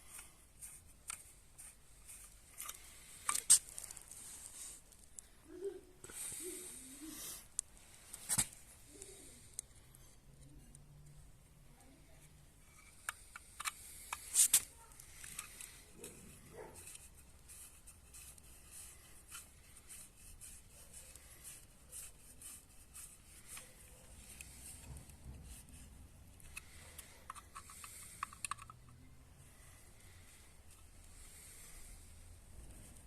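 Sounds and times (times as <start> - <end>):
tools scraping and rubbing: 0.0 - 5.2, 12.6 - 29.2
small metal parts clicking: 26.4 - 29.0.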